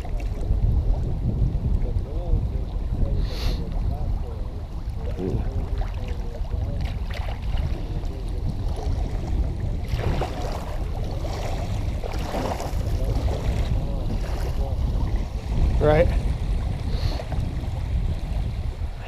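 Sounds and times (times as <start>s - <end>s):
water splashing around kayak: 0.0s - 19.0s
wind rumbling on microphone: 0.0s - 19.0s
paddle stroke splashes: 4.6s - 19.0s.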